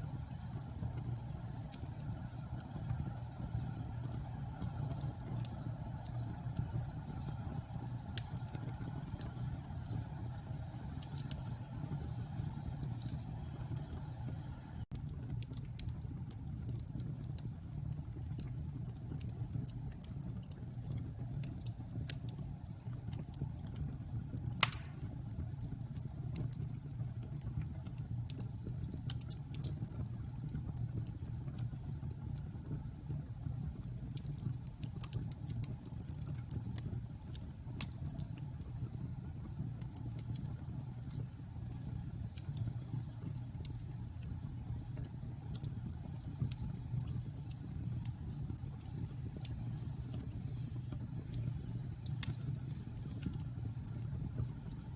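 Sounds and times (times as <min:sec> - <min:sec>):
bonfire rumble and crackles: 0:00.0 - 0:54.9
loud fire pop: 0:24.6 - 0:25.2.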